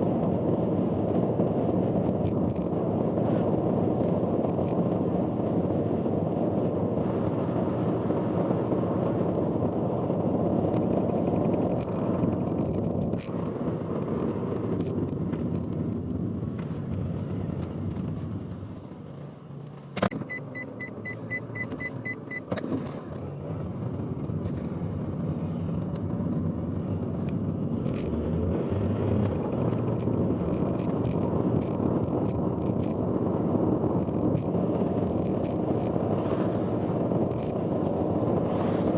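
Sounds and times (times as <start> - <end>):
car road and engine noise: 0.0 - 38.9
rapid high beeps: 20.2 - 22.5.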